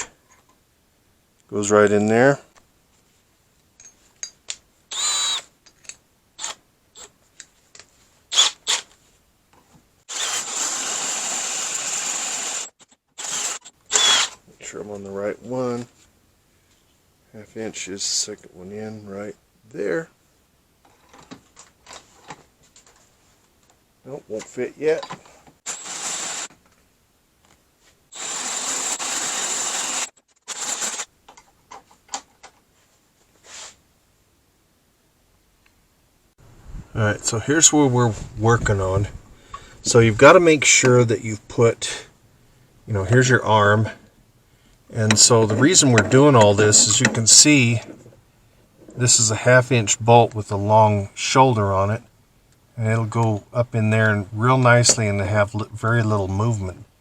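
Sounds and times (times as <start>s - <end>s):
power drill whirring: 4.9s - 5.5s, 6.4s - 7.1s, 8.3s - 8.9s, 10.1s - 14.4s, 25.6s - 26.5s, 28.1s - 31.1s.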